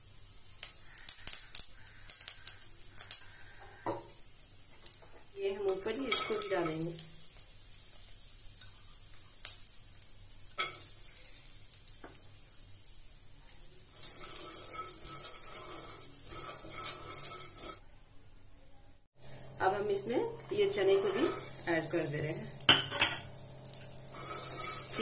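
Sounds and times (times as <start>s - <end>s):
peanuts sizzling in hot oil: 0.0s - 17.8s, 19.1s - 25.0s
nuts rattling and scraping in pan: 5.8s - 7.0s, 14.0s - 17.8s, 20.4s - 25.0s.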